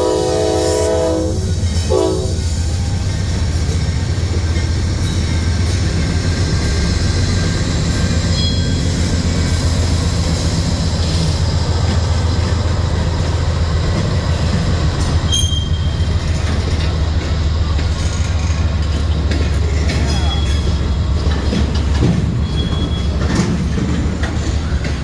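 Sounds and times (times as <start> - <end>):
freight train rumbling past: 0.0 - 25.0
train wheel squeals: 4.5 - 24.0.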